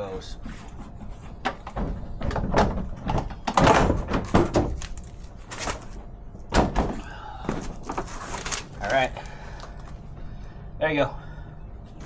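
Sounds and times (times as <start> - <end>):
bumper clunking and scraping: 0.5 - 8.5.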